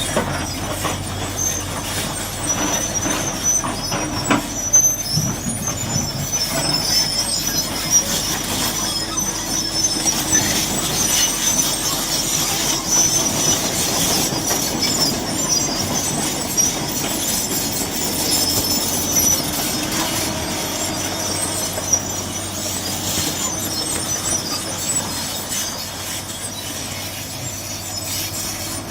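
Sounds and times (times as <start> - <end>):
excavator engine running: 0.0 - 28.9
high-pitched metallic squeal: 0.0 - 28.9.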